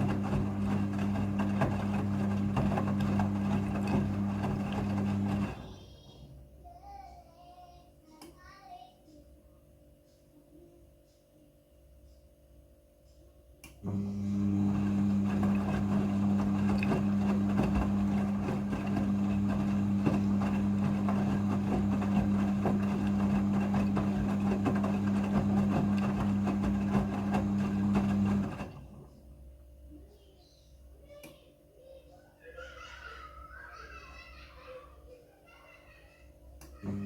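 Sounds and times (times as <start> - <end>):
washing machine humming with water: 0.0 - 6.2, 13.8 - 29.6, 32.5 - 37.0.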